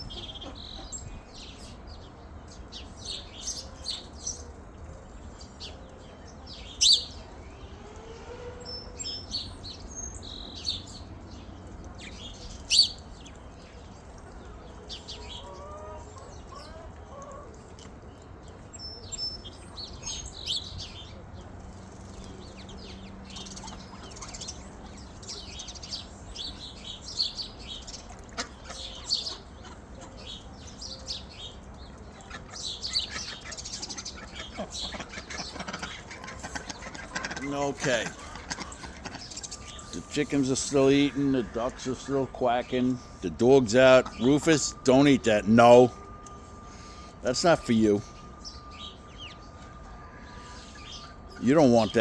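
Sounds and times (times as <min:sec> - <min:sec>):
small birds chirping: 0:00.0 - 0:07.8, 0:08.6 - 0:52.0
faint low bird calls: 0:00.0 - 0:52.0.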